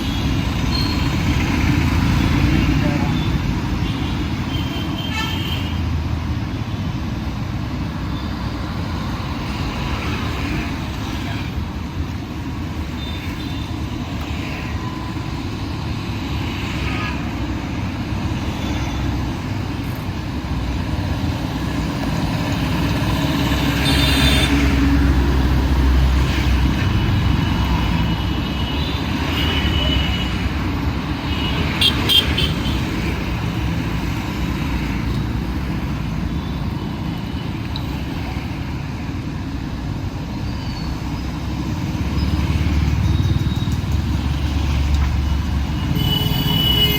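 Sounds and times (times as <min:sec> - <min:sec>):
passing vehicles rumbling: 0:00.0 - 0:46.9.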